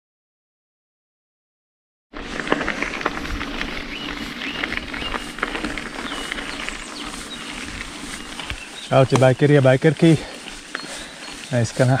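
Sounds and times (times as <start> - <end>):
birds chirping: 3.4 - 12.0.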